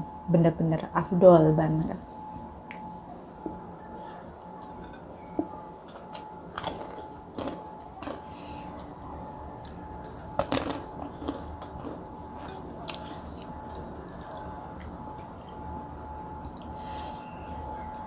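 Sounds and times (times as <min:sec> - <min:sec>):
faint steady hum: 0:00.0 - 0:18.0
person chewing food: 0:05.9 - 0:17.1.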